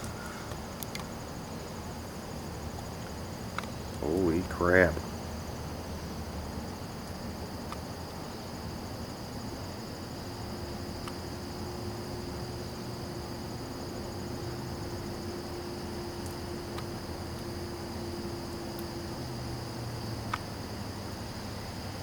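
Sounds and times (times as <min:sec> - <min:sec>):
faint steady hum: 0:00.0 - 0:22.0
insects trilling: 0:00.0 - 0:22.0.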